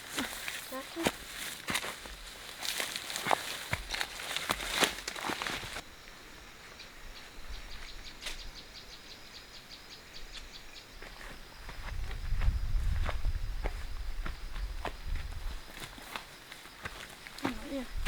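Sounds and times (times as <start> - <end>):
footsteps crackling through dry leaves: 0.0 - 5.8.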